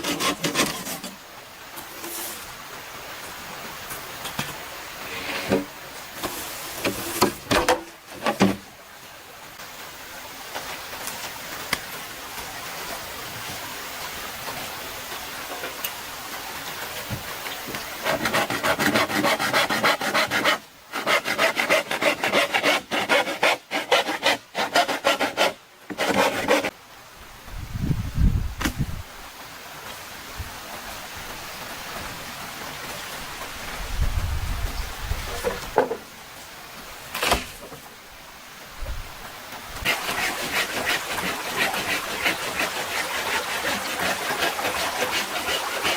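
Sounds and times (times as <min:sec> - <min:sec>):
hand saw cutting bamboo: 0:00.0 - 0:01.2, 0:18.0 - 0:26.7, 0:39.8 - 0:45.9
steady rushing hiss: 0:00.0 - 0:45.9.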